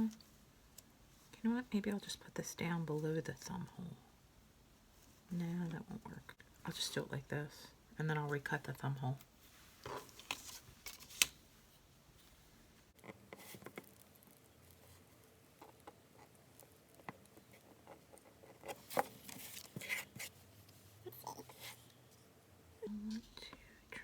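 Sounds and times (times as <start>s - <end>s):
paper rustling: 9.8s - 11.4s, 18.6s - 20.4s.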